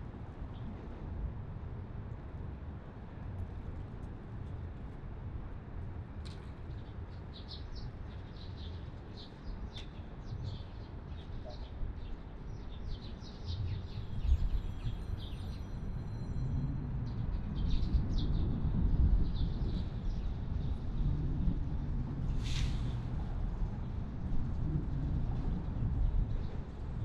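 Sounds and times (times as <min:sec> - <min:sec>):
low outdoor rumble: 0:16.2 - 0:27.0.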